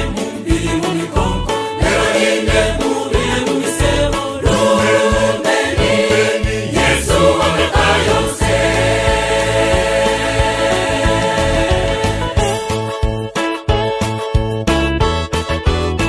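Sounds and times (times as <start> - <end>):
choir singing gospel: 0.0 - 12.8
instrumental backing chords: 0.0 - 16.0.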